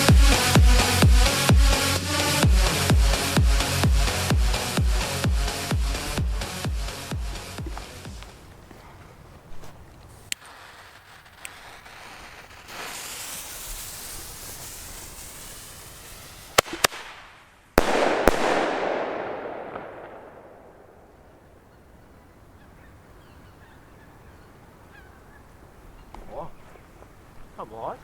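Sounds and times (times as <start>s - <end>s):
firecracker hissing: 0.0s - 8.9s, 9.5s - 21.5s
firecracker bangs: 10.4s - 21.4s.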